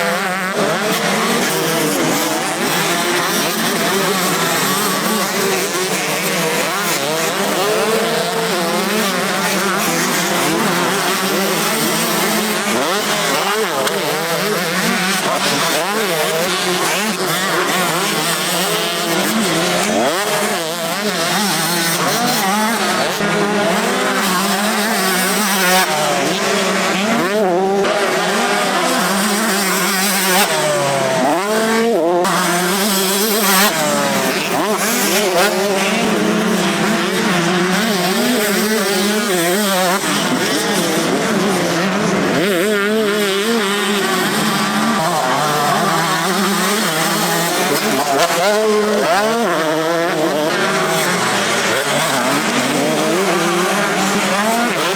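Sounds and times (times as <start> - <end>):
motocross bikes revving: 0.0 - 54.9.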